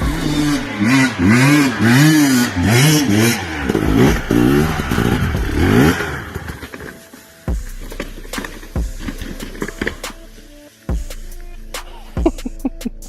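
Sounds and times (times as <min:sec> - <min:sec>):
engine revving: 0:00.0 - 0:07.0.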